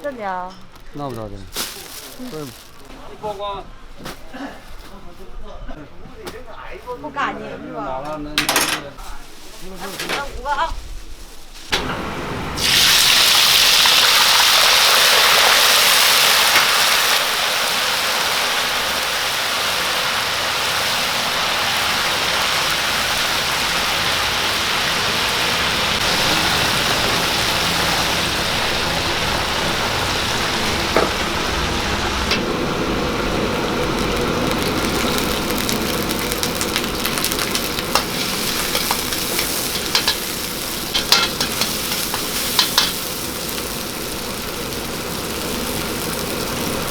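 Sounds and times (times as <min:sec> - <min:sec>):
food sizzling in hot oil: 0:11.7 - 0:46.9.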